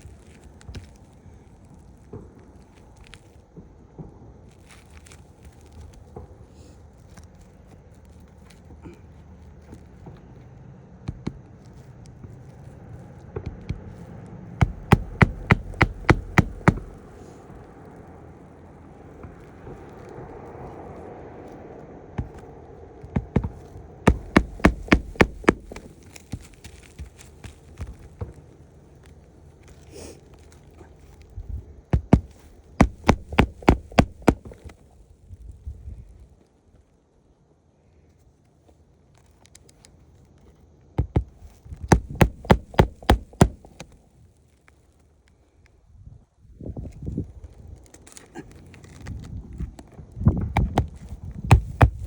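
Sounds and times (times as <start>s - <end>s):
hammer hitting roofing nails: 14.6s - 17.2s, 22.2s - 22.5s, 23.2s - 27.2s, 32.0s - 34.7s, 41.0s - 43.9s, 50.6s - 52.0s.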